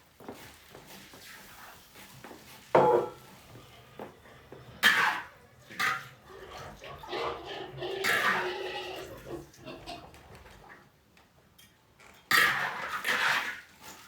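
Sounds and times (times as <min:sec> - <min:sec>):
metal spatula scraping cooking pot: 0:02.8 - 0:10.0.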